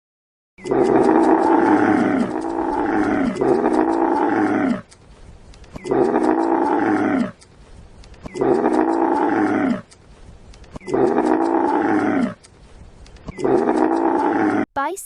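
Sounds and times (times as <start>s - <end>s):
camel calling: 0.6s - 5.0s, 5.7s - 7.5s, 8.2s - 10.1s, 10.7s - 12.5s, 13.3s - 14.6s.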